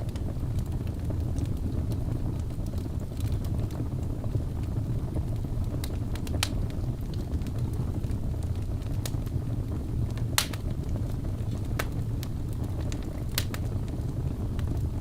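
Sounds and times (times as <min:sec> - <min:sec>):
fire rumbling: 0:00.0 - 0:15.0
logs crackling and popping: 0:00.0 - 0:15.0
loud sharp crack: 0:10.4 - 0:10.6.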